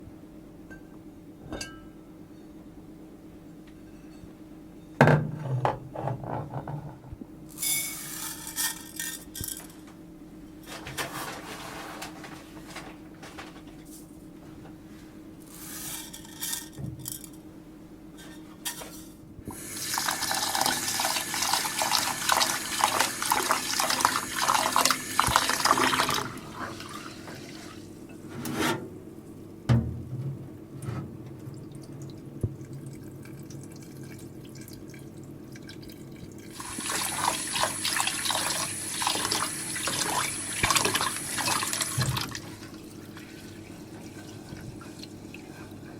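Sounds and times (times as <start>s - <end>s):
water splashing into vessel: 36.6s - 43.3s.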